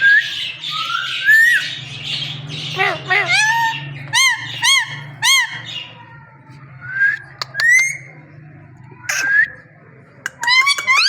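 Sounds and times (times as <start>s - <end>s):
parrot calling: 0.0s - 6.0s, 10.3s - 11.0s.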